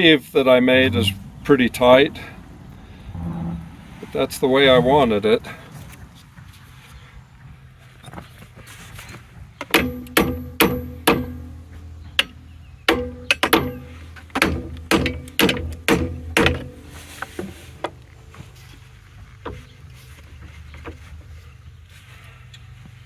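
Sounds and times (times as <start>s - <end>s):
hammer striking metal: 9.7s - 11.6s, 12.2s - 16.8s.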